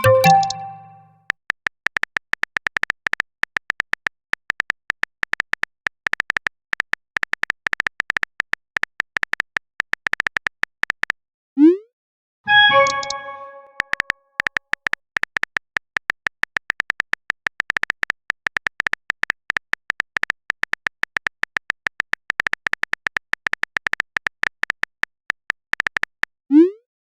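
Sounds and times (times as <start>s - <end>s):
phone keyboard typing clicks: 0.0s - 1.0s, 12.5s - 26.1s.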